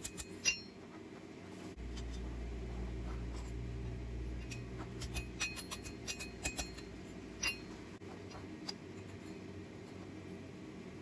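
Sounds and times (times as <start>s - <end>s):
metallic clinks of steel tools: 0.0s - 0.8s, 4.4s - 7.7s
low hum: 0.0s - 11.0s.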